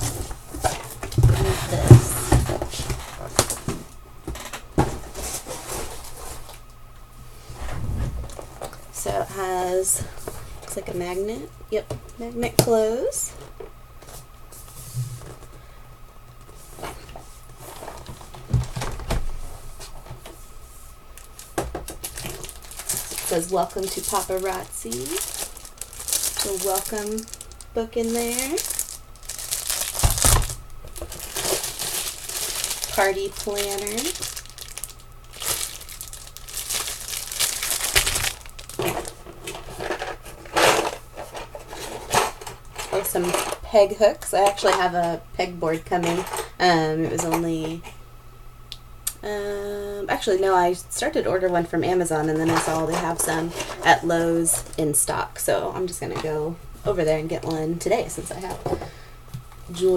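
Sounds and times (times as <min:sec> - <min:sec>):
packaging crinkling and rustling: 0:21.2 - 0:43.1.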